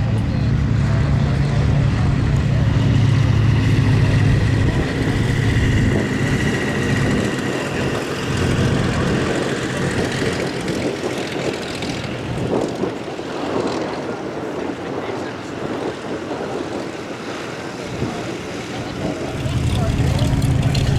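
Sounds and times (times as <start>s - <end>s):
propeller airplane engine droning: 0.0s - 20.9s
rough rushing noise: 18.0s - 20.9s.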